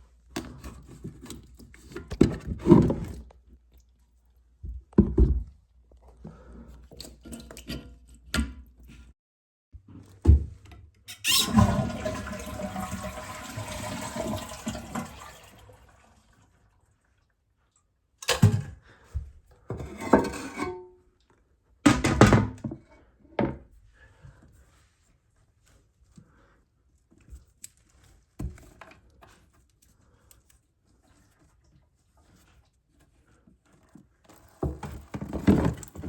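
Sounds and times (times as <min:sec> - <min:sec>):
toilet flushing: 0:11.2 - 0:16.8.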